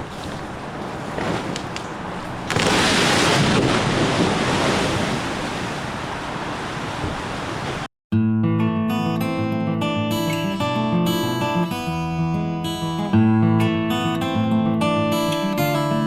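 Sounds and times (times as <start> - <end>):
rushing outdoor noise: 0.0 - 7.9
strummed acoustic guitar music: 8.2 - 16.0.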